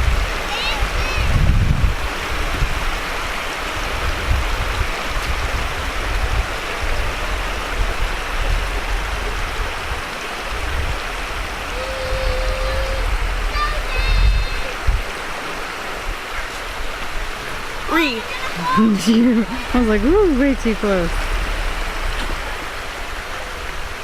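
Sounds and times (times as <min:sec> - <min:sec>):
stream running over rocks: 0:00.0 - 0:24.0
low rumble: 0:10.6 - 0:15.2, 0:19.4 - 0:24.0.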